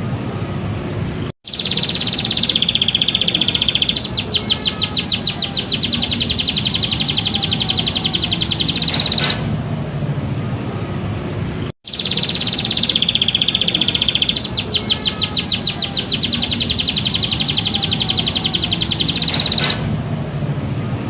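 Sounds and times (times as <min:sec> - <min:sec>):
songbird singing high rapid trill: 0:01.5 - 0:09.4, 0:11.9 - 0:19.9.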